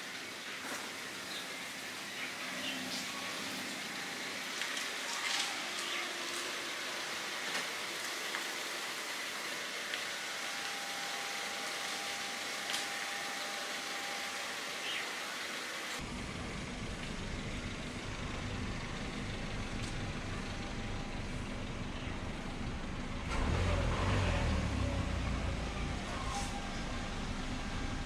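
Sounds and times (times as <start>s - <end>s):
steady hiss: 0.0s - 17.0s
car engine running low: 16.0s - 28.0s.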